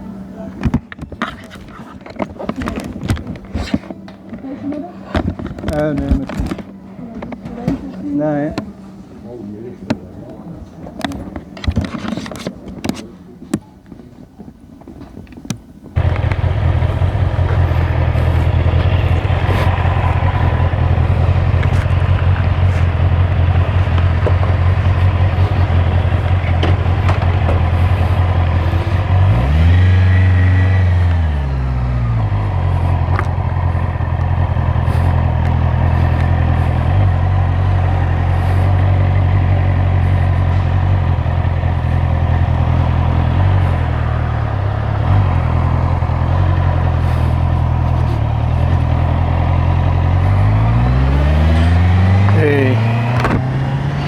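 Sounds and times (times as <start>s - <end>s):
motorcycle engine idling: 16.0s - 54.0s
motorcycle engine revving: 16.0s - 54.0s.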